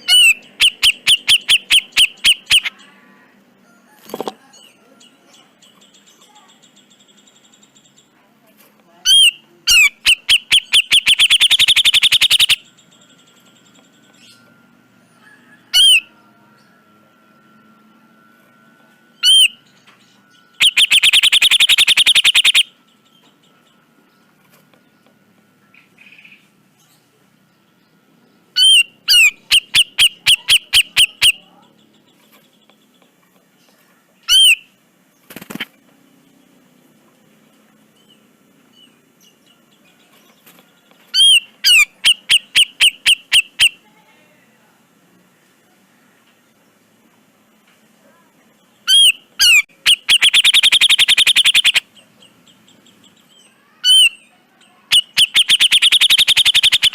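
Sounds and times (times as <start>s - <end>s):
bird whistled calls: 0.0s - 2.8s, 9.1s - 12.6s, 19.2s - 19.6s, 20.5s - 22.8s, 28.6s - 31.4s, 41.1s - 43.8s, 48.8s - 51.9s, 54.9s - 56.9s.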